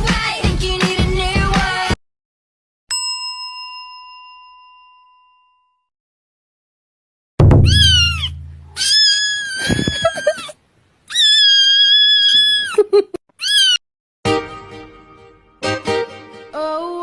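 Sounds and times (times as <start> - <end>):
deep boom: 7.4 - 8.8
plucked-string music: 7.4 - 8.8
cat meowing: 7.5 - 10.5, 11.1 - 12.8, 13.4 - 13.8.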